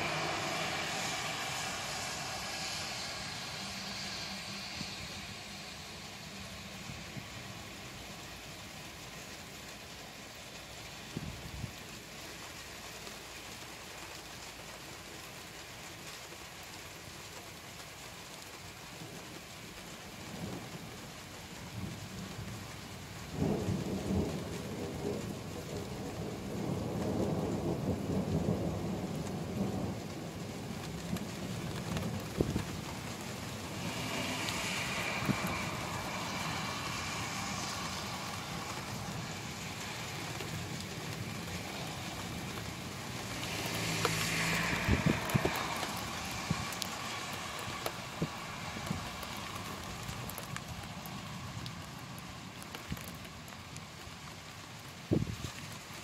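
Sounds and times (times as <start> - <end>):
thunder rumbling: 0.0 - 7.8, 21.6 - 53.2
rain falling: 0.0 - 56.0.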